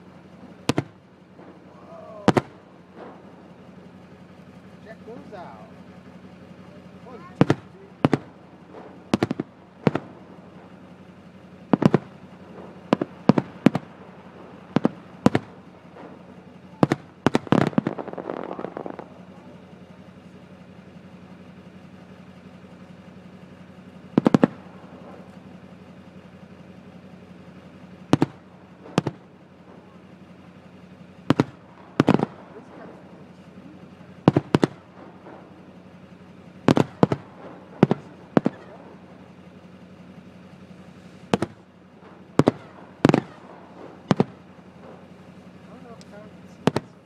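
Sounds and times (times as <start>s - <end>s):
fireworks bangs: 0.0s - 47.0s
fireworks crackling: 0.0s - 47.0s.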